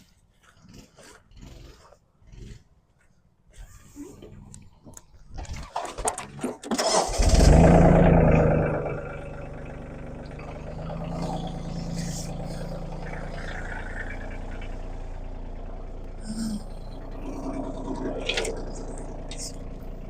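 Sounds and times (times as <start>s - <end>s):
engine cranking: 4.3s - 20.0s
engine revving and idling: 6.2s - 20.0s.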